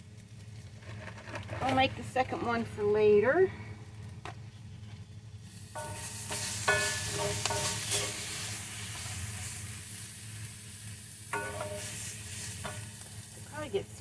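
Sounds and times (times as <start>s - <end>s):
utensil scraping a pan: 4.7s - 9.9s, 11.3s - 13.4s
tofu sizzling in a frying pan: 5.5s - 14.0s.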